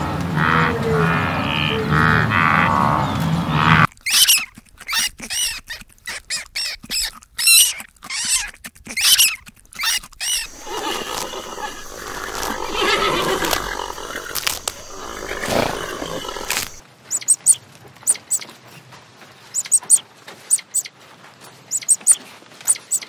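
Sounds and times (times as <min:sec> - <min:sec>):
otter squeaking chirps: 0:03.7 - 0:18.5, 0:19.5 - 0:20.9, 0:21.7 - 0:23.0.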